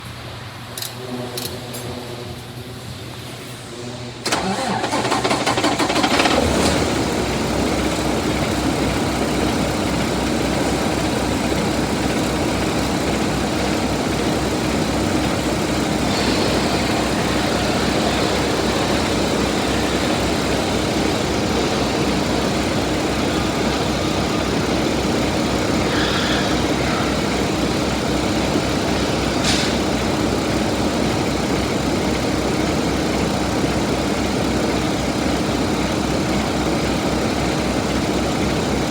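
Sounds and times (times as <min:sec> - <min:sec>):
diesel engine starting and idling: 0:04.1 - 0:38.9.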